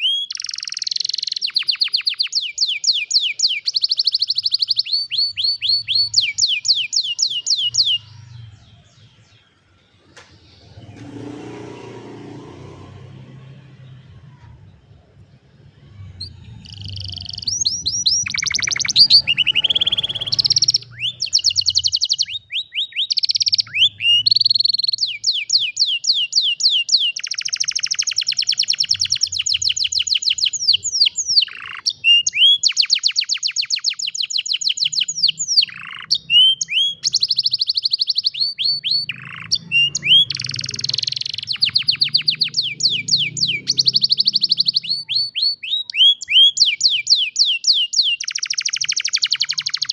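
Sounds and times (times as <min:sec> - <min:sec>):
canary singing trills: 0:00.0 - 0:49.9
faint low rumble: 0:07.8 - 0:22.3.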